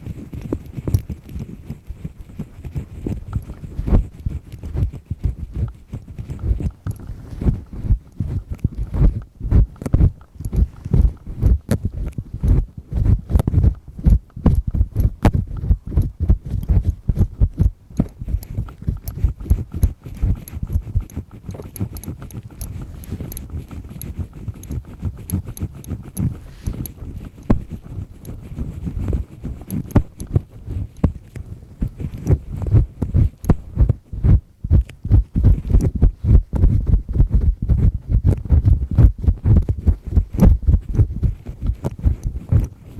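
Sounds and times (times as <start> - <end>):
earpick scraping in ear: 0.0 - 42.9
dull low thuds: 3.1 - 20.0, 27.4 - 28.1, 29.8 - 31.2, 31.8 - 42.7.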